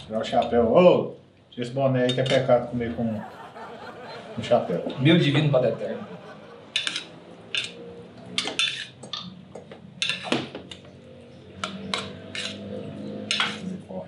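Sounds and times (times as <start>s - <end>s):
cutlery clinking on plates: 2.1s - 2.5s.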